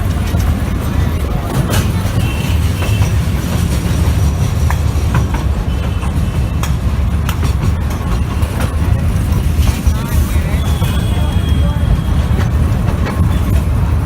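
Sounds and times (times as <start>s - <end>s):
train rumbling: 0.0s - 14.0s
wheels clicking over rails: 0.0s - 14.0s.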